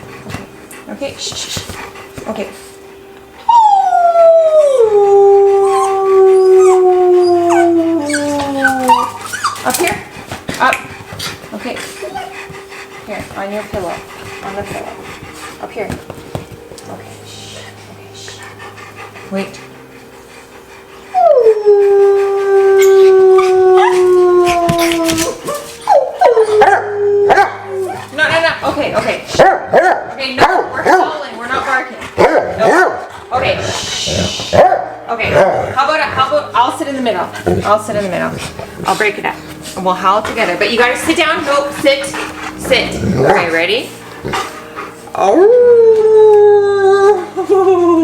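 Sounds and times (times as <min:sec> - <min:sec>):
dogs and person howling: 0:03.4 - 0:17.0, 0:18.5 - 0:31.1, 0:31.7 - 0:48.0
dogs yipping and barking: 0:04.6 - 0:16.6, 0:22.7 - 0:31.1, 0:31.7 - 0:33.6
long howl sliding down in pitch: 0:21.1 - 0:28.0, 0:45.2 - 0:48.0.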